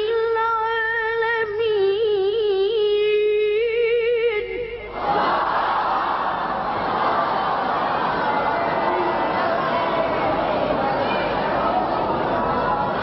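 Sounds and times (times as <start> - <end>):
child reciting melodically: 0.0 - 4.6
crowd voices: 4.9 - 13.0.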